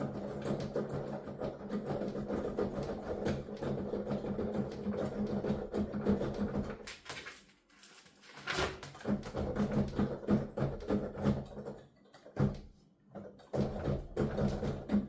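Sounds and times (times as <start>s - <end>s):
piano keys tapping and thudding: 0.0s - 7.0s, 8.9s - 15.0s.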